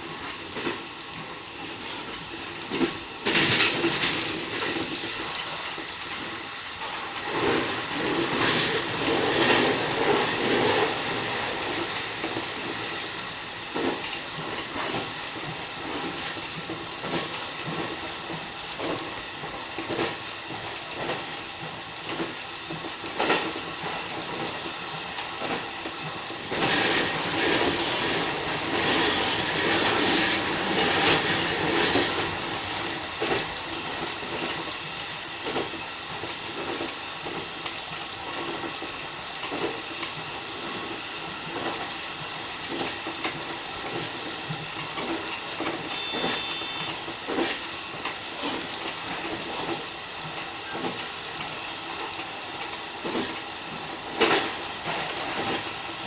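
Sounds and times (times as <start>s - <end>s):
electric train running: 0.0s - 56.0s
wheels clicking over rail joints: 0.1s - 56.0s.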